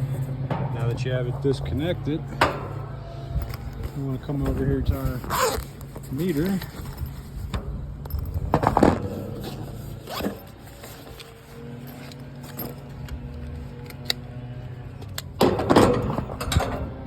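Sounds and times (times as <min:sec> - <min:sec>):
steady low hum: 0:00.0 - 0:17.0
tools being handled: 0:02.4 - 0:14.4
zipper being pulled: 0:05.2 - 0:07.3, 0:09.1 - 0:13.0.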